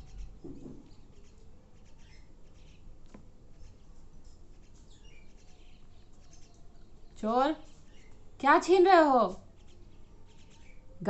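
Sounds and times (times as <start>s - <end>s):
parrot chirping: 0.0s - 2.9s.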